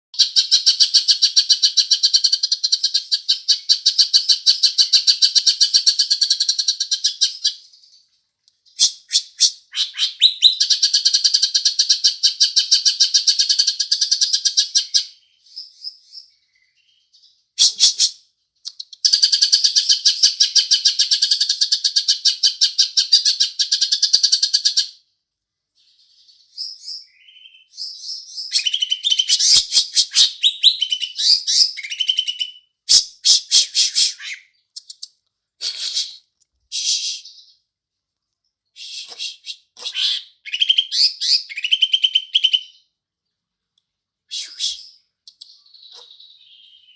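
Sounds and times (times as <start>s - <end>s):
bird singing: 0.2s - 11.9s, 13.5s - 25.0s, 25.8s - 32.7s, 38.7s - 43.4s, 44.4s - 46.9s.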